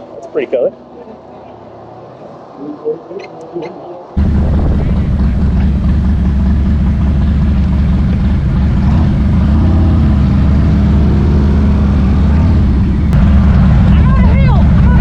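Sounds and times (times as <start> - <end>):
motorcycle engine idling: 4.2 - 10.8, 11.8 - 15.0.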